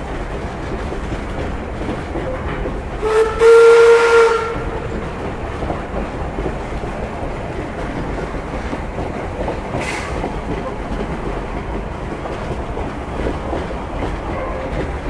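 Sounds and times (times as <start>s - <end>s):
train rumble: 0.0s - 15.0s
wheels clattering over rails: 0.0s - 15.0s.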